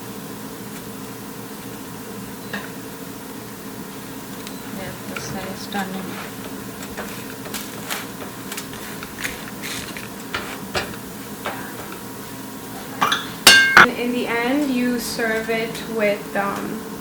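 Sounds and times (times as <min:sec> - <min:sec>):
steady low hum: 0:00.0 - 0:15.0
utensil clattering: 0:13.0 - 0:13.9.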